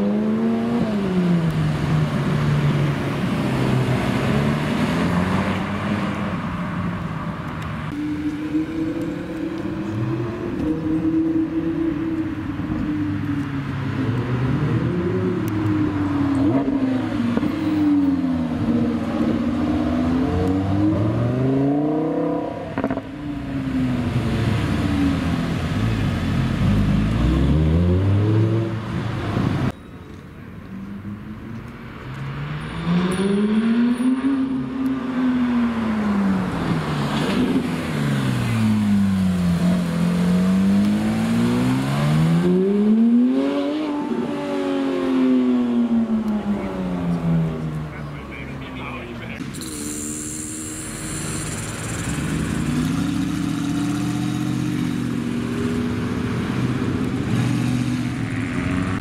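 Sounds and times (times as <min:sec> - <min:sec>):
sports car engines revving: 0:00.0 - 0:29.8, 0:30.8 - 0:59.0
car engine revving: 0:14.0 - 0:29.7, 0:32.1 - 0:59.0.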